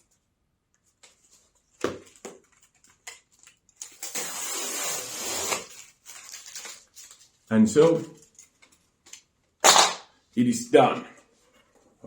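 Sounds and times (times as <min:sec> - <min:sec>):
small clicks and scrapes: 0:02.3 - 0:09.3.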